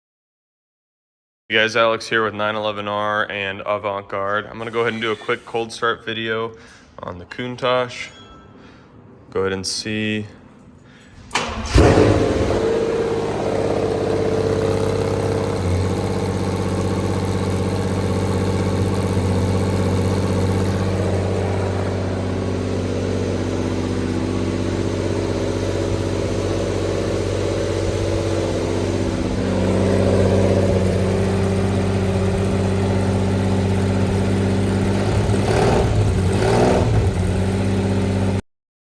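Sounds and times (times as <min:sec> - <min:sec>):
car engine idling: 0:11.1 - 0:38.4.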